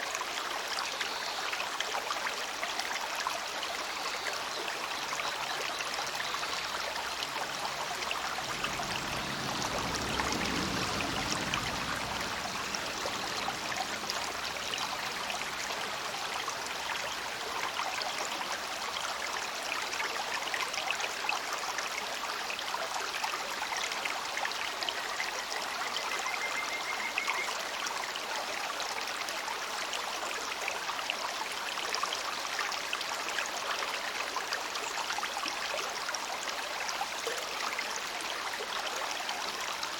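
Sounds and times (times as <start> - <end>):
river babbling: 0.0 - 39.9
low rumble: 7.1 - 16.0.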